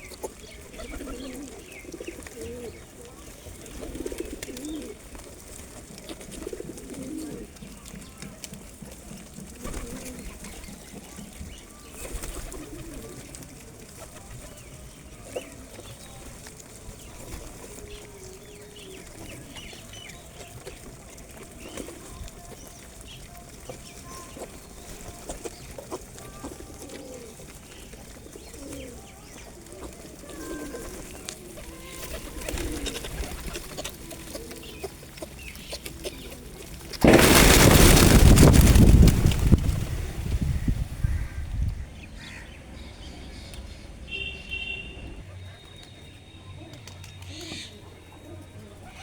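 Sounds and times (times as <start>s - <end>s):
small ticks and rustles: 0.0s - 37.0s
pigeons cooing: 0.0s - 41.4s, 44.9s - 49.0s.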